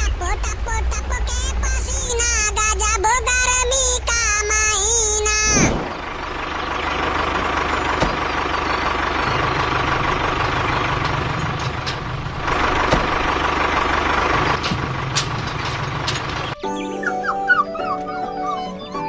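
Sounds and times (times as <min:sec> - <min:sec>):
engine running steadily: 0:00.0 - 0:16.6.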